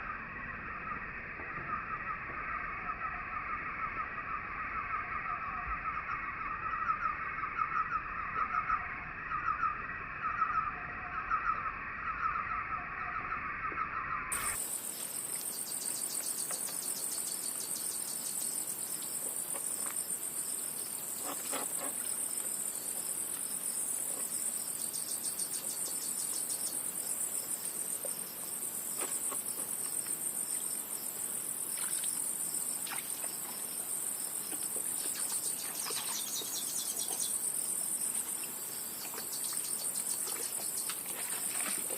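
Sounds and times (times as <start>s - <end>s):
pulsing insect chirping: 0.0s - 41.9s
high insect trill: 14.3s - 41.9s.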